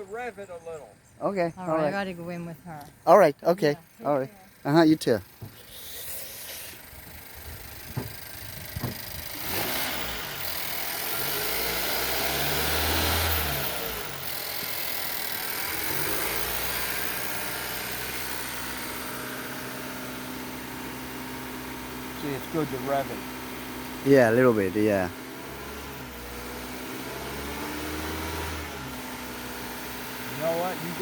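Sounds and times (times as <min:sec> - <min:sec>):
car engine revving and idling: 0:06.8 - 0:31.0
light knocks: 0:07.9 - 0:09.1.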